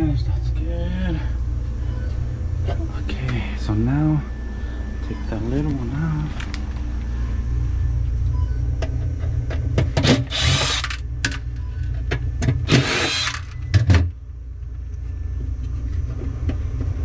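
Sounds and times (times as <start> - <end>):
low hum: 0.0 - 17.0
power drill driver whirring: 10.0 - 11.0, 12.7 - 13.6.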